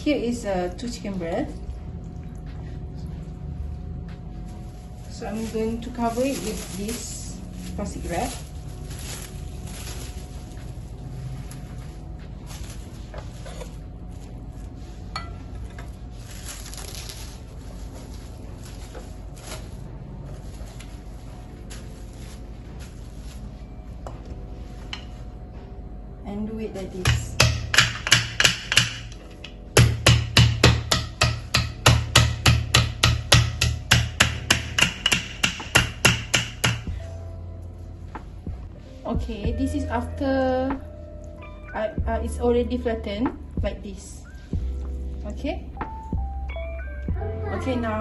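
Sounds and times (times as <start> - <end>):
steady low hum: 0.0 - 48.0
cling film rustling and crinkling: 4.2 - 25.2
meat pounder strikes: 27.0 - 37.0.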